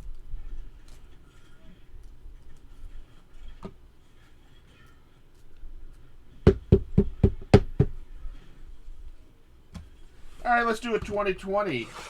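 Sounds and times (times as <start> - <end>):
sharp knocks on hard surface: 6.5 - 8.0.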